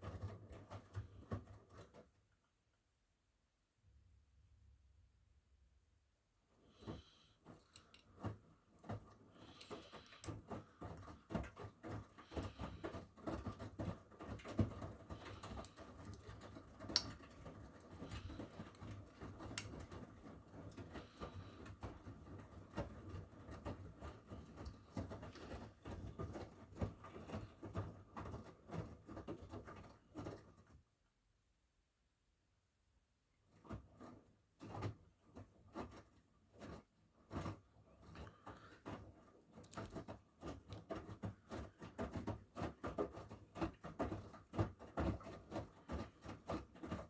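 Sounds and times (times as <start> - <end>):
laundry tumbling in washing machine: 0.0 - 2.2, 6.6 - 30.8, 33.4 - 47.0
washing machine motor hum: 8.1 - 28.8.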